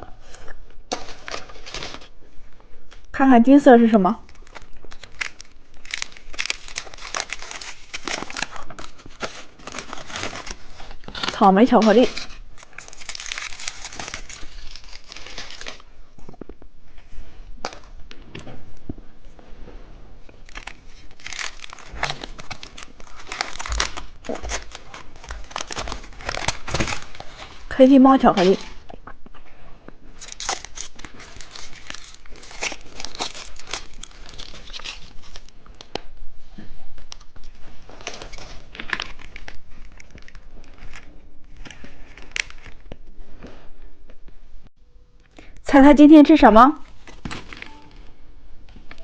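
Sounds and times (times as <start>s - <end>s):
candy wrapper crinkling and tearing: 4.2s - 15.9s, 20.4s - 27.4s, 30.2s - 35.9s.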